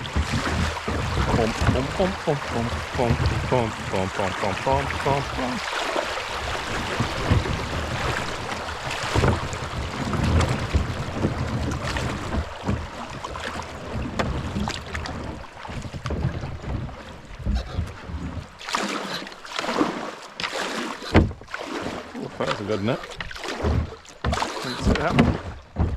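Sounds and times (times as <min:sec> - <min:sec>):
low knocks against hull: 0:00.0 - 0:05.7, 0:06.3 - 0:18.5, 0:21.1 - 0:21.6, 0:22.4 - 0:25.9
water rushing and splashing: 0:00.0 - 0:25.9
wind buffeting microphone: 0:06.4 - 0:12.5.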